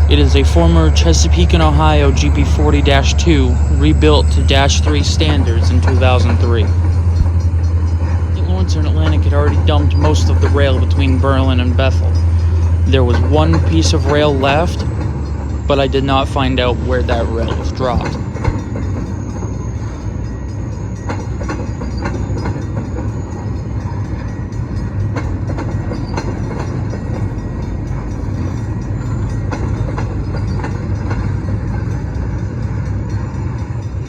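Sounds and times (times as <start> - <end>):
freight train rolling past: 0.0 - 34.0
wheels clicking and knocking: 0.0 - 34.0.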